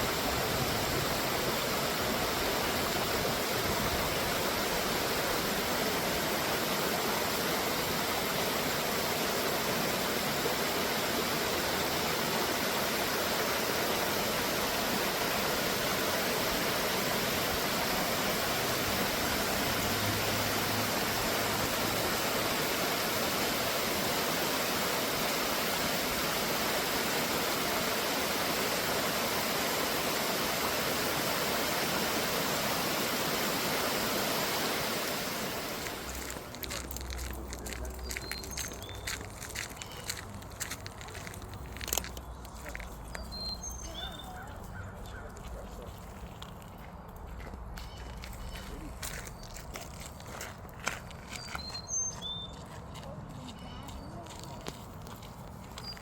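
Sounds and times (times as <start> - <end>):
waterfall rushing: 0.0 - 39.2.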